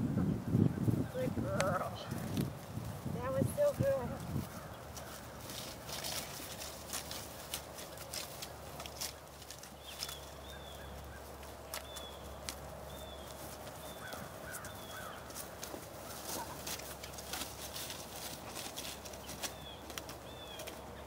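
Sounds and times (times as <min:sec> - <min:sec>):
low wind rumble: 0:00.0 - 0:21.0
low bird chirps: 0:09.8 - 0:15.4.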